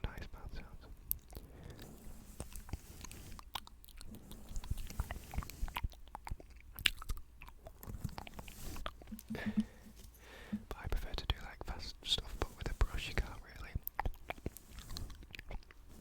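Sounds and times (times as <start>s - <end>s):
wet mouth clicks and smacks: 1.0s - 9.7s, 13.8s - 15.8s
brush stroking microphone: 1.9s - 3.4s, 8.0s - 13.7s, 14.4s - 15.2s.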